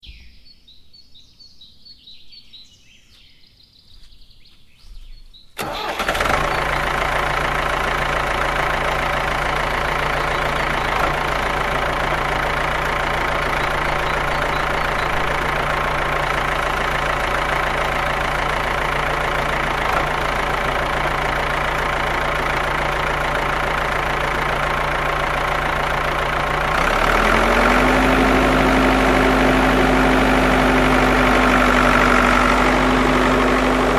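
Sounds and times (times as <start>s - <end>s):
engine starting and idling: 5.6s - 33.9s
faint high chirps: 6.5s - 16.2s.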